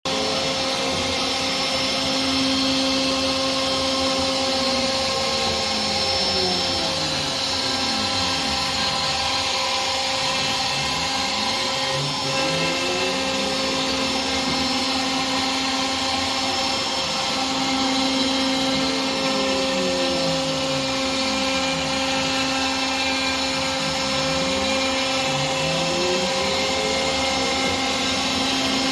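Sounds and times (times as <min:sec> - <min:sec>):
machine motor whine: 0:00.1 - 0:28.9.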